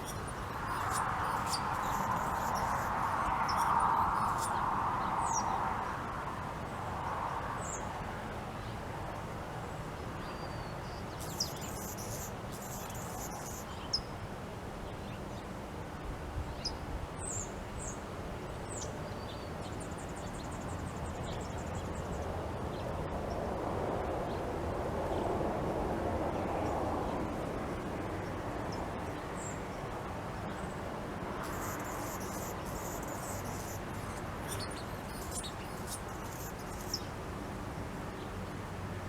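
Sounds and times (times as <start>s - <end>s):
small songbirds chirping: 0.0s - 5.7s, 10.2s - 14.2s, 16.5s - 23.0s, 28.6s - 37.2s
steady background noise: 0.0s - 39.0s.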